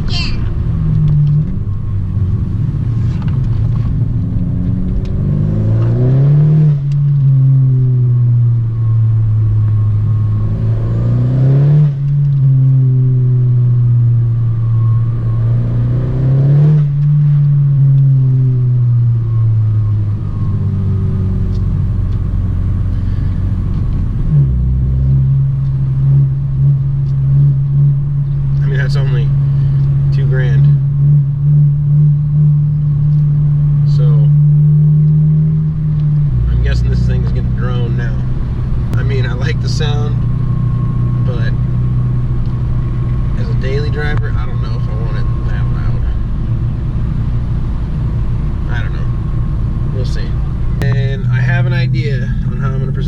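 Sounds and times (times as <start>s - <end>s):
loud car engine revving: 0.0s - 53.0s.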